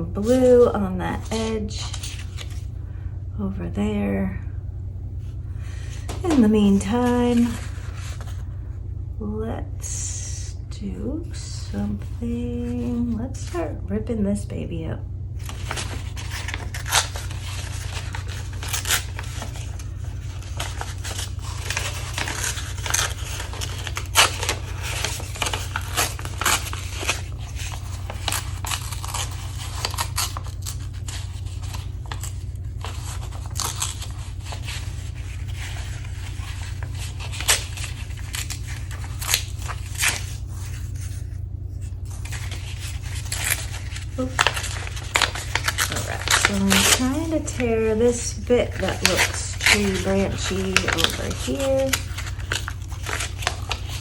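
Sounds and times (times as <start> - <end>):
steady low hum: 0.0 - 54.0
paper tearing and crinkling: 1.2 - 2.7, 15.4 - 54.0.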